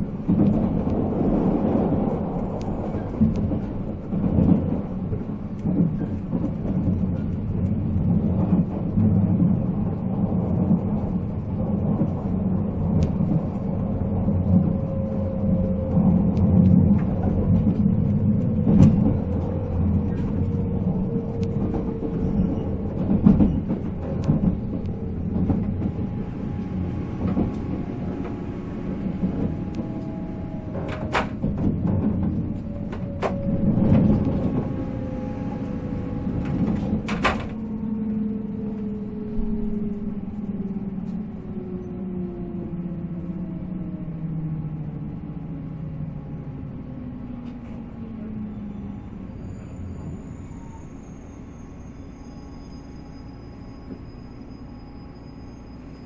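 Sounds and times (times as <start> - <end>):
rail clicks: 0.0 - 41.6
train wheels and motors rumbling: 0.0 - 56.0.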